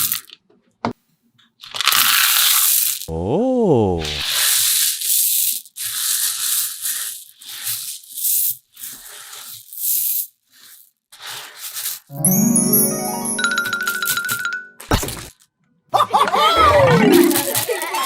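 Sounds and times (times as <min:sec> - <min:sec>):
rough rubbing or tearing sounds: 0:04.0 - 0:12.1
cartoon pitch glide effect: 0:12.1 - 0:14.4, 0:16.6 - 0:17.6
chiming music: 0:12.1 - 0:14.9, 0:16.6 - 0:17.6.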